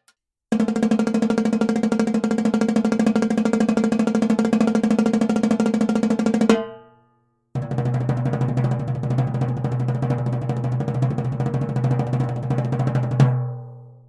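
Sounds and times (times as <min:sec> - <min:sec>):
accented timbale hit ringing: 0:06.5 - 0:07.1.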